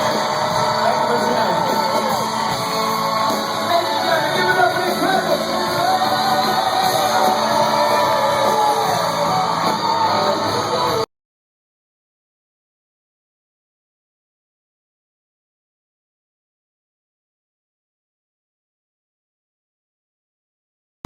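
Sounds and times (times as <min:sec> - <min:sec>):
live rock band with singing: 0:00.0 - 0:11.0.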